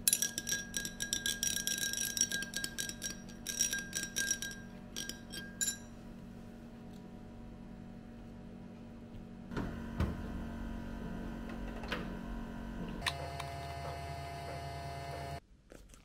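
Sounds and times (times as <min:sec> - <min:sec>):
water dispenser mechanical hum: 0:06.2 - 0:15.4.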